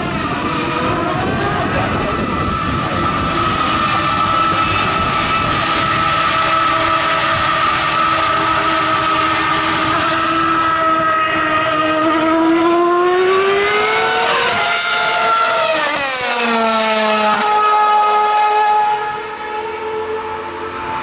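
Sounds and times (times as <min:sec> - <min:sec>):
racing car engine high whine: 0:00.0 - 0:21.0.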